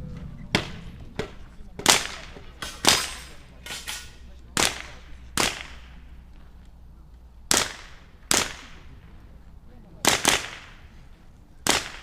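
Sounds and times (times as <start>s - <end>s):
rifle shots: 1.8s - 3.3s, 4.6s - 5.9s, 7.5s - 8.9s, 10.0s - 10.8s, 11.6s - 12.0s.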